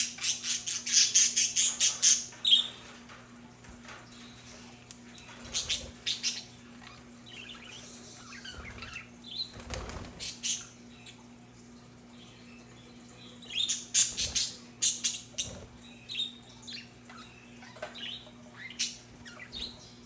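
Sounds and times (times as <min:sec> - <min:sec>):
budgerigars chirping: 0:00.0 - 0:03.0, 0:04.4 - 0:11.2
budgerigars warbling chatter: 0:04.4 - 0:10.8
flutter of wings: 0:09.5 - 0:10.4.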